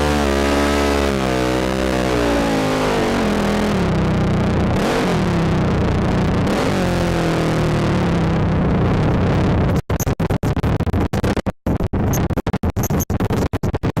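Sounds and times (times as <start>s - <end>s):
atv engine revving: 0.0s - 9.4s.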